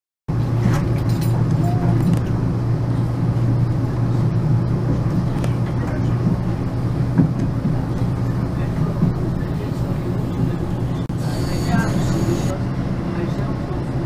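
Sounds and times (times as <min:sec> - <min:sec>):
train interior low hum: 0:00.3 - 0:14.0.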